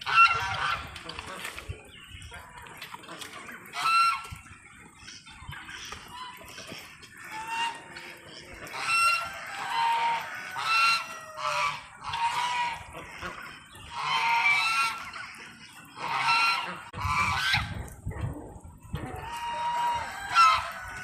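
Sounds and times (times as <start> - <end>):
geese honking: 0.0 - 17.8, 18.9 - 21.0.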